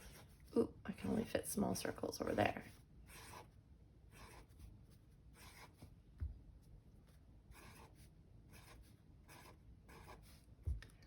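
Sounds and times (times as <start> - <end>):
pen scratching on paper: 2.4 - 6.0, 7.4 - 10.8.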